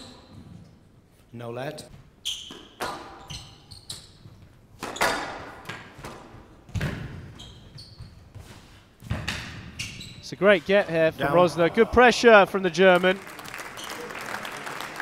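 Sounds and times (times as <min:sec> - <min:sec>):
shoes squeaking on court floor: 0:01.8 - 0:11.0
squash ball hitting rackets and walls: 0:01.9 - 0:10.0.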